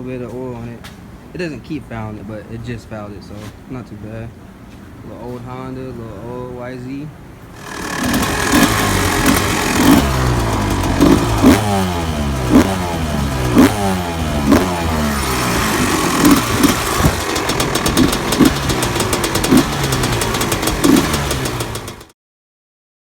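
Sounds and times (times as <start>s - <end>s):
dirt bike engine revving: 7.6s - 22.1s.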